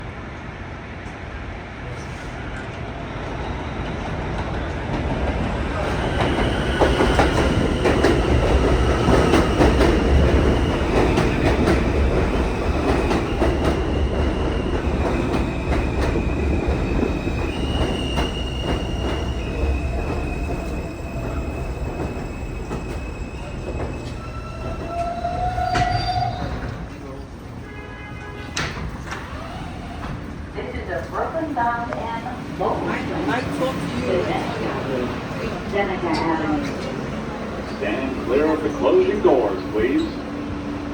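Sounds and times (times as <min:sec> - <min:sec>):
subway train rumbling on rails: 0:00.0 - 0:40.9
metal wheel squeals: 0:24.0 - 0:27.2.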